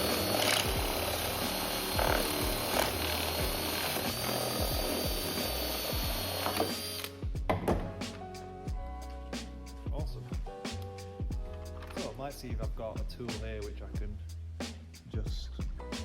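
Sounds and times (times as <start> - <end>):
power drill whining: 0.0 - 7.2
music with a beat: 0.0 - 16.0.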